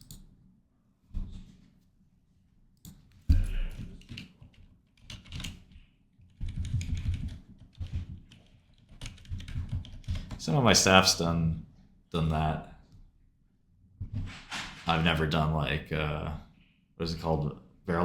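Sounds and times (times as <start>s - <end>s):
typing on computer keyboard: 2.8s - 10.4s.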